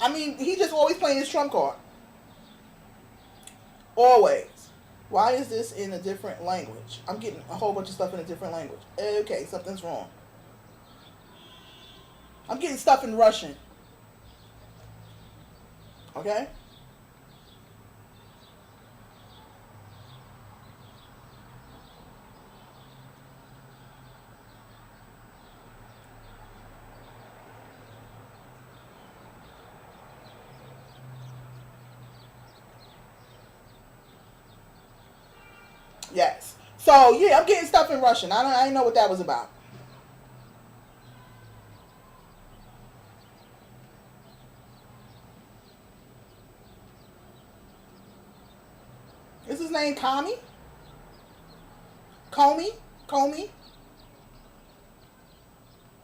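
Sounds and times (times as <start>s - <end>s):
faint high chirps: 13.8s - 36.8s, 39.5s - 49.6s.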